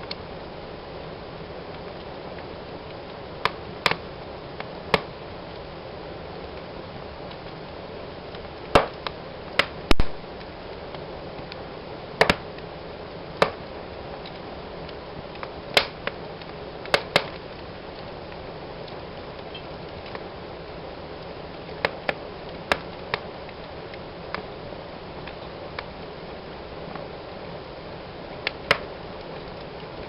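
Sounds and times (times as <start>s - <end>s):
wood fire crackling: 0.0s - 30.0s
sharp pops of fire: 1.8s - 5.6s, 8.2s - 20.3s, 21.2s - 24.5s, 28.4s - 30.0s.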